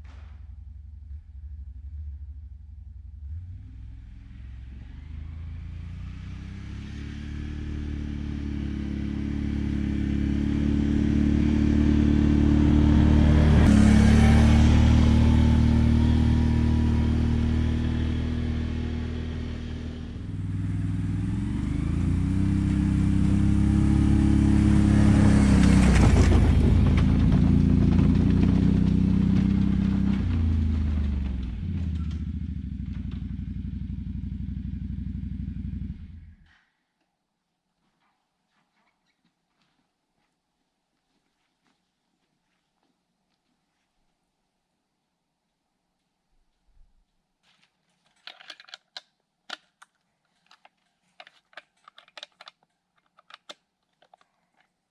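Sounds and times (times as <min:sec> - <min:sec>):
atv engine running: 0:01.3 - 0:36.4.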